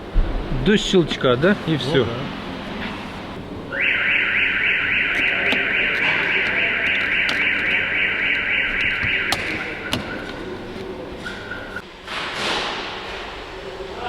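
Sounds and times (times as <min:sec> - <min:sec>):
electronic alarm warbling: 0:03.7 - 0:09.9
sharp clicks: 0:04.9 - 0:10.5.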